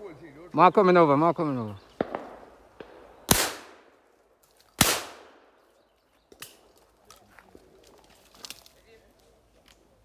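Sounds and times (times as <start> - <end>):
shotgun shots with echo: 2.0 - 3.9, 4.8 - 5.5.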